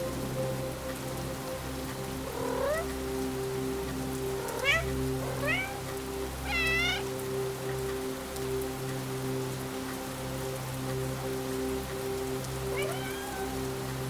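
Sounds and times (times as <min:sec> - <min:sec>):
steady rain: 0:00.0 - 0:14.0
cat meowing: 0:02.4 - 0:02.9, 0:04.4 - 0:05.8, 0:06.4 - 0:07.1, 0:12.7 - 0:13.7.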